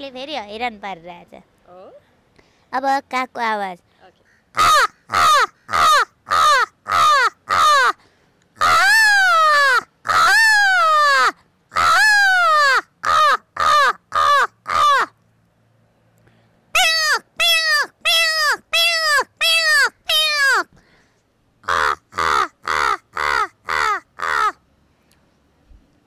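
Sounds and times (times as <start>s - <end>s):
woman imitating crow caws: 4.3s - 8.0s, 8.6s - 15.1s, 16.8s - 20.7s, 21.6s - 24.6s.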